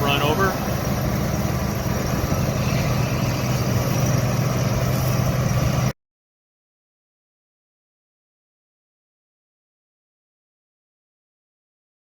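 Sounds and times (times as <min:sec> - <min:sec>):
farm machine engine droning: 0:00.0 - 0:06.0.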